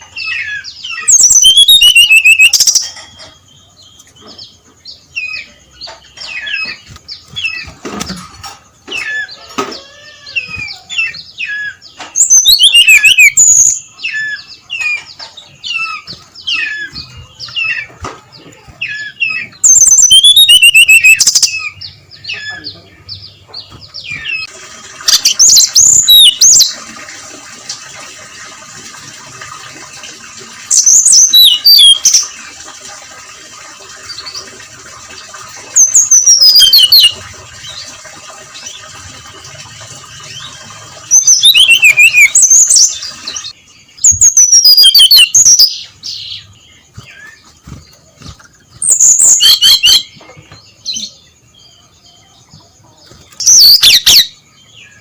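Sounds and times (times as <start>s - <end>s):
bird singing high clear notes: 1.0s - 3.2s, 10.1s - 14.5s, 18.8s - 22.9s, 25.1s - 26.7s, 41.1s - 45.9s.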